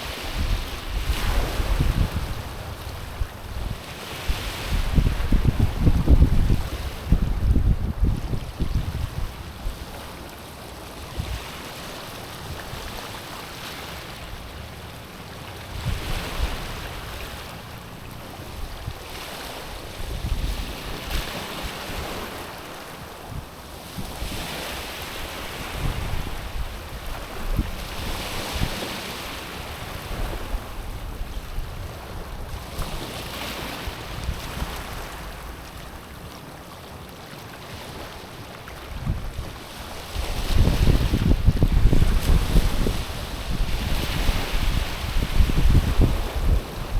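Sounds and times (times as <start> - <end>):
wind buffeting microphone: 0.0 - 10.0, 18.2 - 22.4, 23.2 - 36.0, 38.8 - 46.9
waves washing on stony shore: 0.0 - 46.9.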